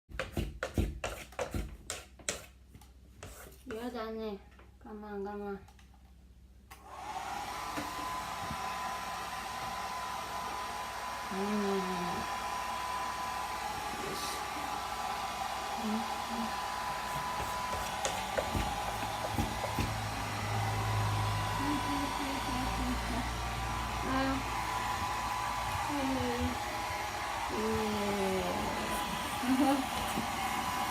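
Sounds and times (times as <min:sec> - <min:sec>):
hair dryer blowing: 0:06.7 - 0:30.9.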